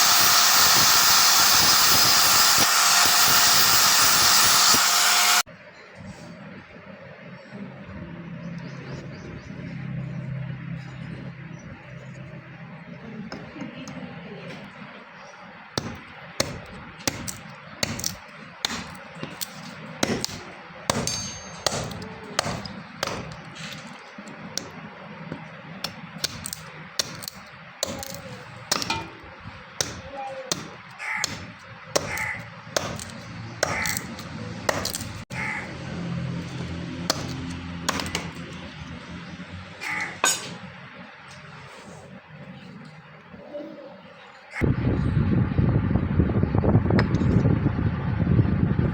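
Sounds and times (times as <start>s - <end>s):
hammer striking metal: 15.8s - 23.5s, 25.8s - 35.1s, 36.6s - 38.5s, 40.0s - 40.7s.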